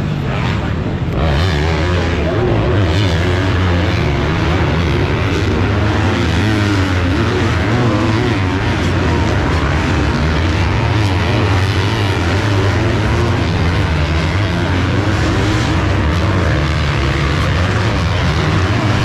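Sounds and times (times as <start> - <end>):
motocross bike engines racing: 0.0 - 19.0.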